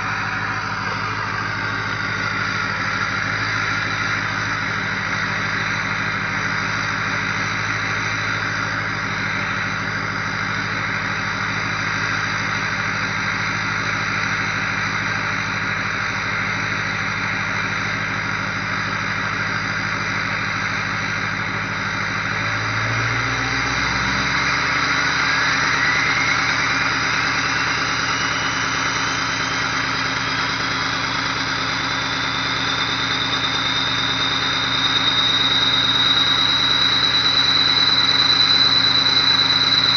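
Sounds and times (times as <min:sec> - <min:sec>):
turbo whistle rising: 0:00.0 - 0:10.8, 0:22.4 - 0:39.9
diesel truck engine idling: 0:00.0 - 0:39.9.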